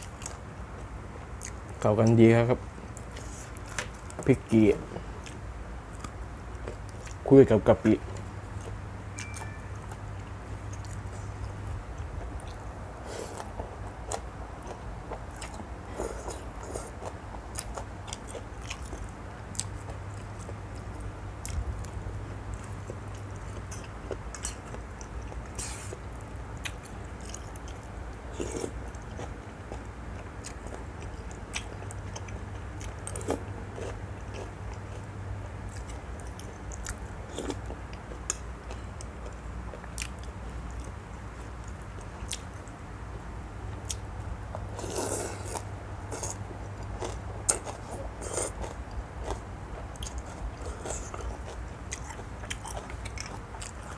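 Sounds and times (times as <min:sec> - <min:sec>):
steady low hum: 0:00.0 - 0:53.9
person chewing with wet smacks: 0:01.4 - 0:01.8, 0:05.2 - 0:07.2, 0:08.1 - 0:42.8, 0:43.7 - 0:53.9.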